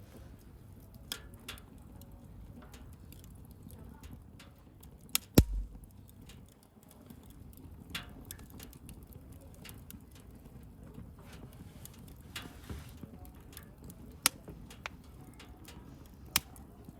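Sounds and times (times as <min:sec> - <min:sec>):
bonfire crackling: 0:00.4 - 0:16.9
low thud: 0:05.4 - 0:05.9
sharp pops: 0:05.4 - 0:05.9.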